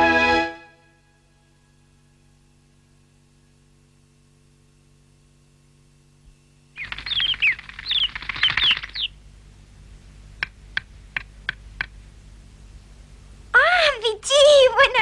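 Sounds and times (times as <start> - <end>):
small bird twittering: 6.8 - 9.2.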